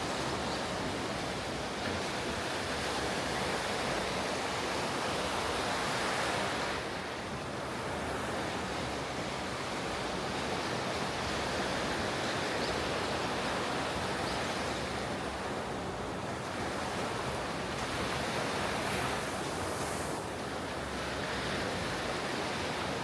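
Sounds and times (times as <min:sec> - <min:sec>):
ocean waves breaking on beach: 0:00.0 - 0:23.0.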